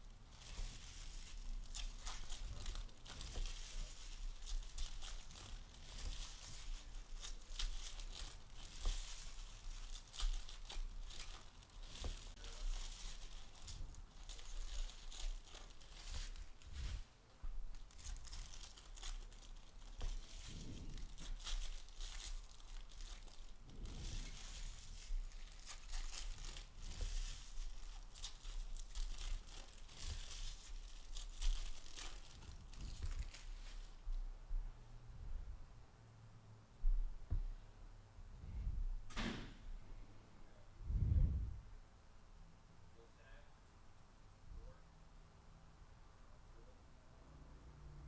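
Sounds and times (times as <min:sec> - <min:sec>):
card pack wrappers tearing: 0:00.0 - 0:16.6, 0:17.8 - 0:33.6.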